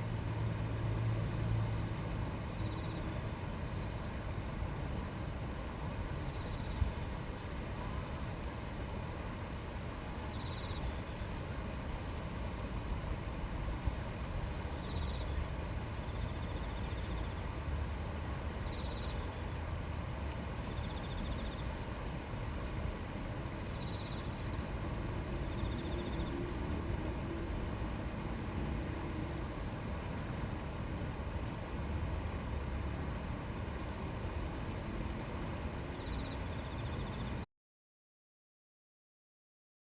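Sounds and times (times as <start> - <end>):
river babbling over stones: 6.9 - 35.8.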